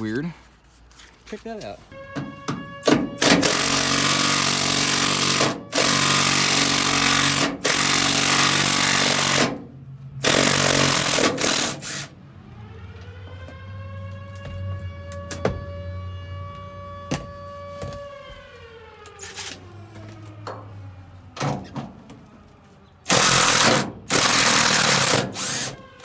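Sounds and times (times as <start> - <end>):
power tool running hard: 3.2 - 9.6, 10.2 - 12.1, 23.1 - 25.8.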